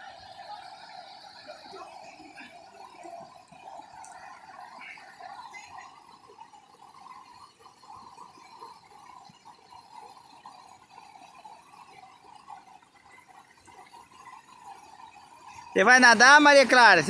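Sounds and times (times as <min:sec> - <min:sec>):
waterfall rushing: 0:15.8 - 0:17.0.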